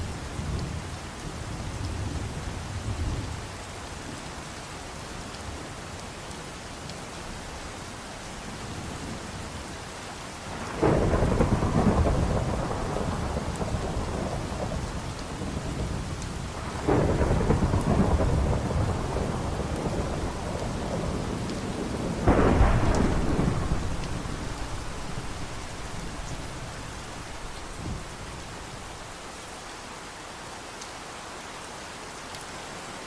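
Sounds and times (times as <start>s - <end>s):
steady rain: 0.0s - 33.0s
thunder rolling: 10.6s - 16.0s, 16.6s - 29.1s.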